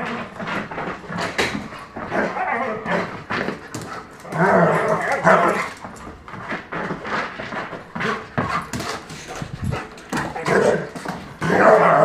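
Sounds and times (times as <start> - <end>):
dog whining: 2.0 - 3.2.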